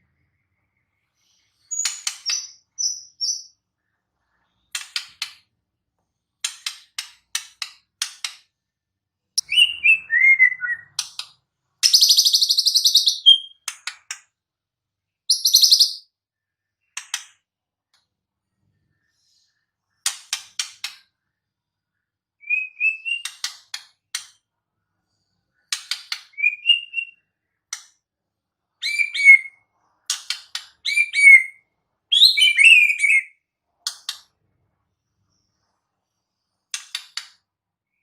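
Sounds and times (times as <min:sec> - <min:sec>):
bird singing: 0:09.4 - 0:11.0, 0:11.8 - 0:13.6, 0:15.2 - 0:17.0, 0:26.3 - 0:27.4, 0:28.8 - 0:29.6, 0:30.8 - 0:33.4.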